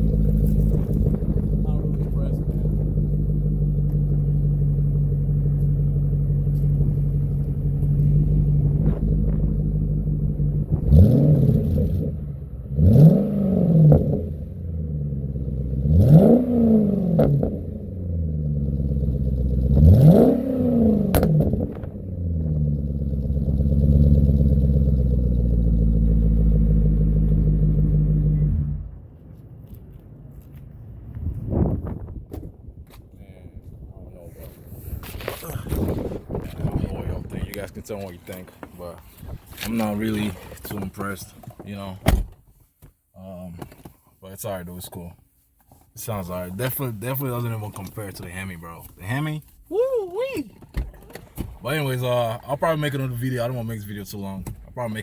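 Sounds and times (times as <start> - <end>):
car engine idling and revving: 0.0 - 32.2, 33.6 - 55.0.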